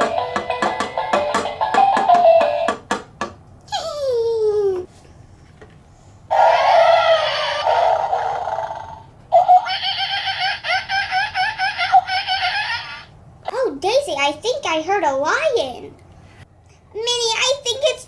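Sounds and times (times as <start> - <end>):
person laughing: 9.6 - 13.1.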